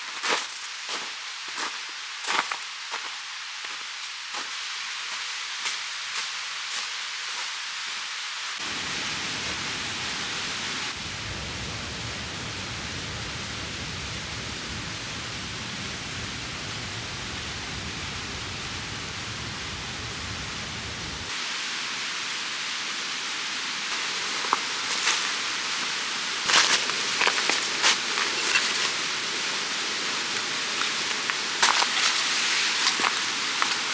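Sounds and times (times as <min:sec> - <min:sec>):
mountain stream rushing: 0:08.6 - 0:33.9.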